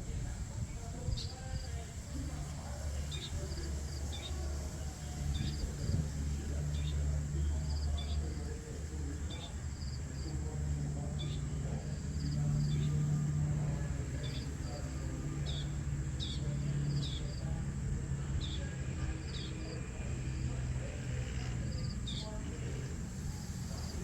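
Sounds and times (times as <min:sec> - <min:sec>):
steady low hum: 0:00.0 - 0:24.0
small birds chirping: 0:00.1 - 0:24.0.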